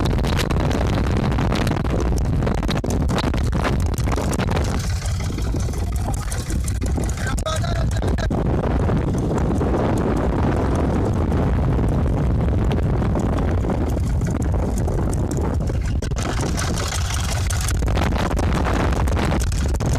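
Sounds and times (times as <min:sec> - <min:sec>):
boat engine rumbling: 0:00.0 - 0:19.9
water wash: 0:03.3 - 0:10.8.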